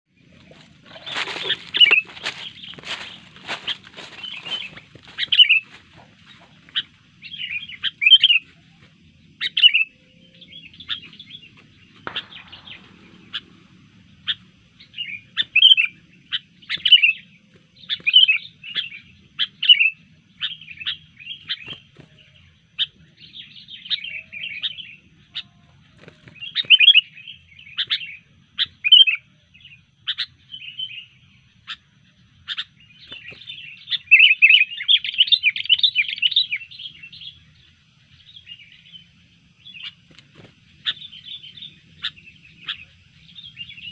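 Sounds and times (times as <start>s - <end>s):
bulbul chirping and chattering: 0.2s - 8.5s, 9.4s - 29.2s, 39.6s - 43.9s.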